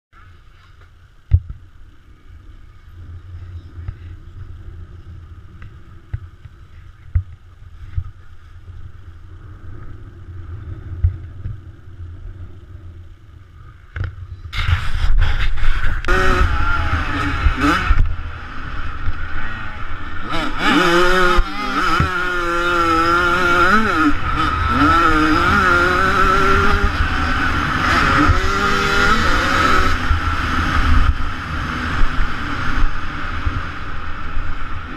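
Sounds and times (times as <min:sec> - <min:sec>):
low rumble: 0:00.2 - 0:34.9
motocross engine revving: 0:14.5 - 0:33.9.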